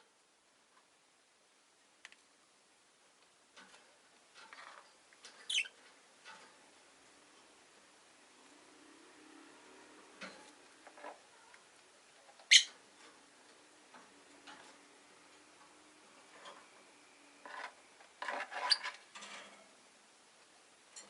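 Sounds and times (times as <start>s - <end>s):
bird chirps: 5.5s - 5.7s, 12.5s - 12.7s.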